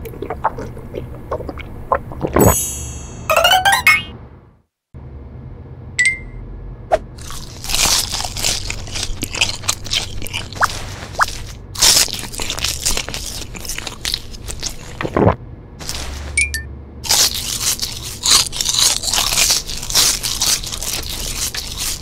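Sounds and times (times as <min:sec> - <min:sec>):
crunching and chewing seaweed: 0:00.0 - 0:02.4, 0:07.2 - 0:16.4, 0:17.0 - 0:22.0
short high ding: 0:02.4 - 0:04.1, 0:06.0 - 0:06.4.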